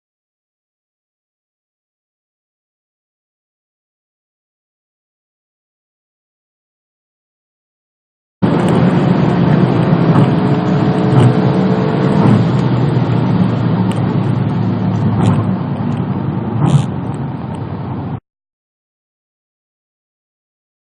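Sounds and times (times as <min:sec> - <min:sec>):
car engine running at speed: 0:08.4 - 0:18.2
road noise: 0:08.4 - 0:18.2.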